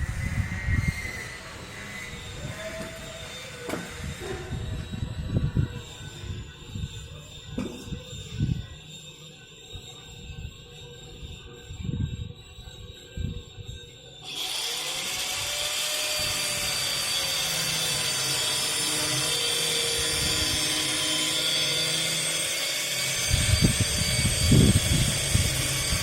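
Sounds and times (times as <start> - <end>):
power tool running with hiss: 0.0 - 8.6, 14.2 - 26.0.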